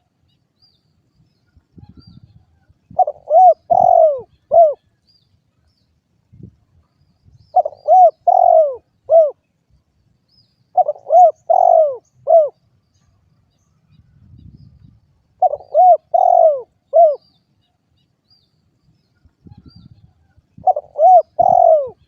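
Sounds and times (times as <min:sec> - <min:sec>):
dove cooing: 0:02.9 - 0:04.9, 0:07.5 - 0:09.4, 0:10.7 - 0:12.6, 0:15.4 - 0:17.3, 0:20.6 - 0:22.0.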